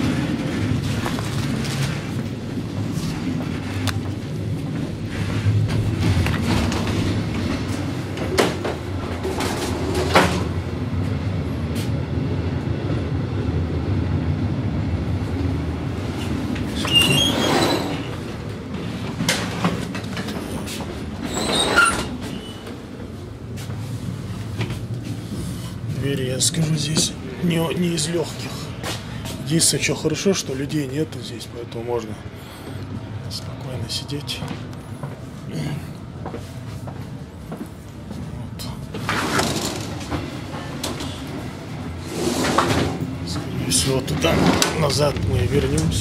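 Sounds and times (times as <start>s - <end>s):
train carriage rumble: 0.0s - 46.0s
screeching scraping noises: 16.7s - 18.3s, 21.2s - 22.7s.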